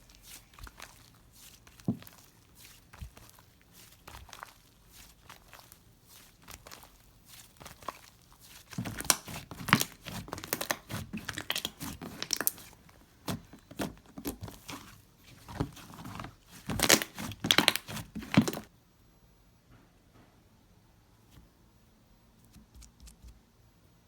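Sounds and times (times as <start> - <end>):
slime squeezed by hand: 0.0 - 18.7.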